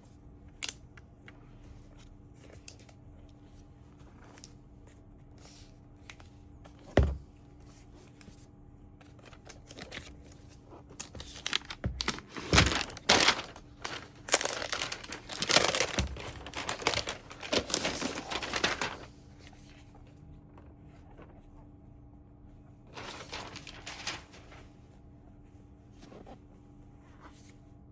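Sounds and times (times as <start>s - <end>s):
wrapping crinkling and tearing: 9.2s - 19.2s, 23.0s - 24.6s
packaging thump: 11.0s - 19.1s.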